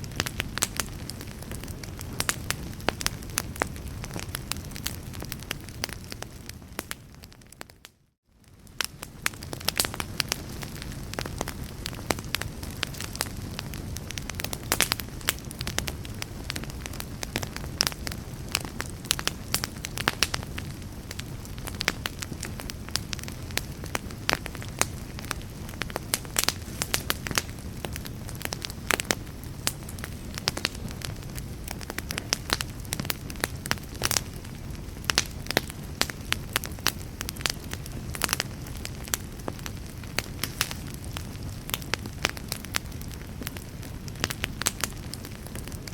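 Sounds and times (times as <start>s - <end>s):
fire crackling and popping: 0.0s - 45.9s.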